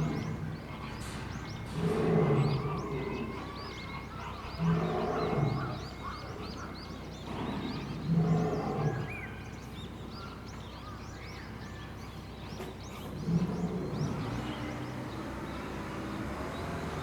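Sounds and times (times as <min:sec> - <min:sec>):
lion grunting: 0:00.0 - 0:03.7, 0:04.4 - 0:06.6, 0:07.2 - 0:09.3, 0:13.0 - 0:14.5
small birds chirping: 0:00.0 - 0:17.0.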